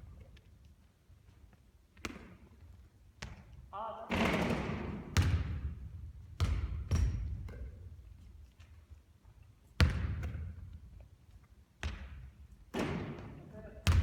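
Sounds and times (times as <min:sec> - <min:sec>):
basketball bouncing on court floor: 0:02.0 - 0:08.8, 0:09.7 - 0:11.1, 0:11.8 - 0:14.0.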